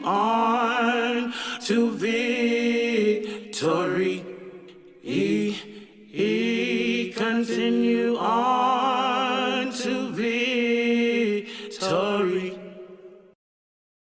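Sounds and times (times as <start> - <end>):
unaccompanied voices singing: 0.0 - 13.2
breaths: 1.2 - 1.7, 3.2 - 3.6, 5.5 - 6.1, 11.4 - 11.8.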